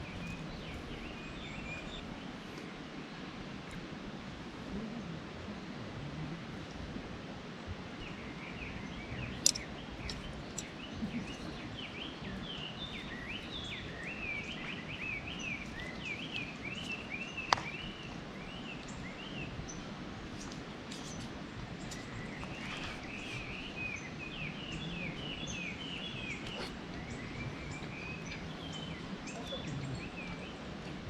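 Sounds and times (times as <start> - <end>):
songbird singing rapid chirps: 0.0 - 6.8, 7.4 - 31.0
outdoor background noise: 0.0 - 31.0
sharp clicks: 9.4 - 10.7.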